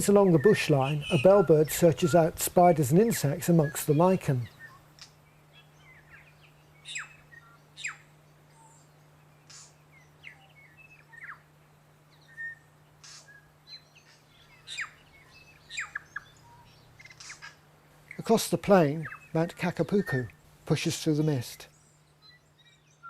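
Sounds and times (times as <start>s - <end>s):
faint steady low hum: 0.0s - 23.0s
bellbird calling: 0.3s - 2.4s.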